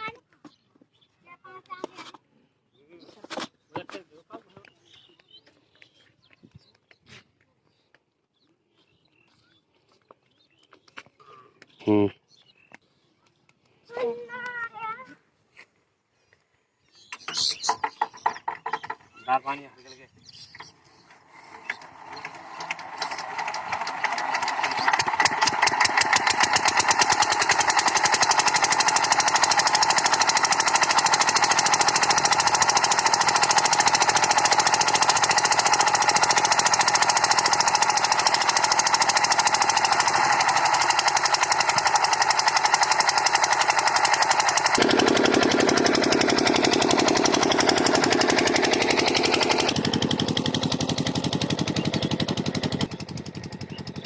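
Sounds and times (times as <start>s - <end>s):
diesel pump engine knocking: 21.8s - 54.0s.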